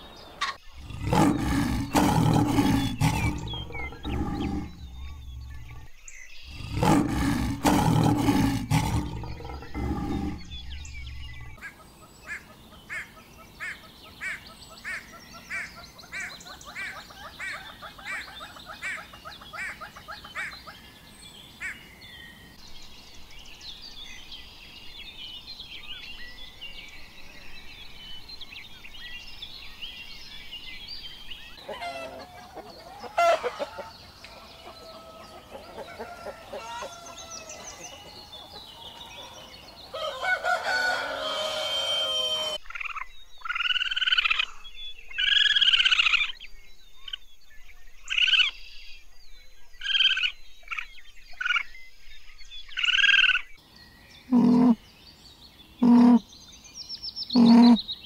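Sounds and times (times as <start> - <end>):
small birds chirping: 0.0 - 58.0
hornbill calling: 0.4 - 5.9, 6.5 - 13.0, 54.3 - 54.8, 55.8 - 56.2, 57.4 - 57.8
chickens clucking: 31.6 - 42.6
rooster crowing: 31.6 - 42.6.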